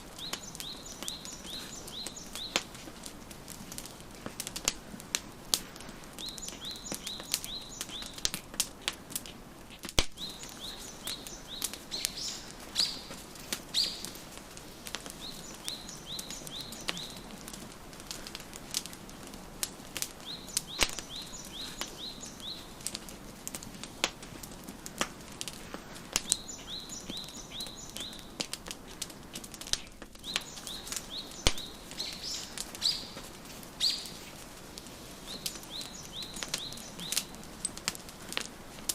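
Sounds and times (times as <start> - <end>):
songbird chirping: 0.0 - 4.1, 6.1 - 8.3, 10.1 - 23.0, 26.2 - 28.5, 30.2 - 38.1
wood fire crackling: 0.0 - 38.9.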